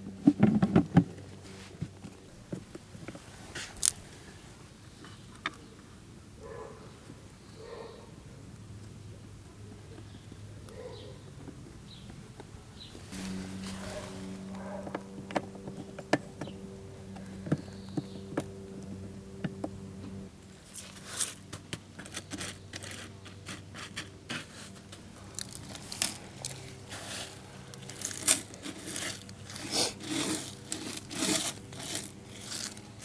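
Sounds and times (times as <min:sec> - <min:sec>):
scraping and rustling handling noise: 0:00.1 - 0:05.7, 0:11.4 - 0:33.0
steady low hum: 0:08.1 - 0:33.0.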